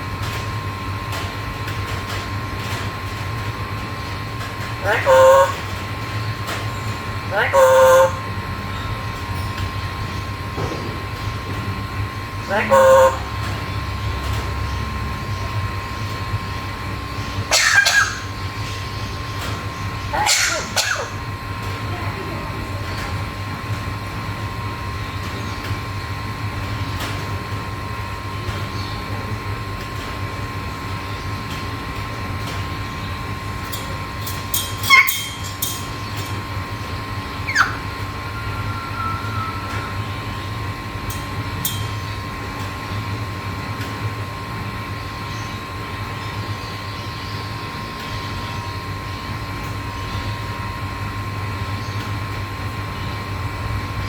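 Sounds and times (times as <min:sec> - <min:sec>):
steady low hum: 0:00.0 - 0:54.0
parrot calls: 0:04.7 - 0:05.9, 0:07.0 - 0:08.5, 0:12.4 - 0:13.8, 0:17.2 - 0:18.8, 0:19.4 - 0:21.3, 0:34.8 - 0:36.1, 0:37.3 - 0:40.0.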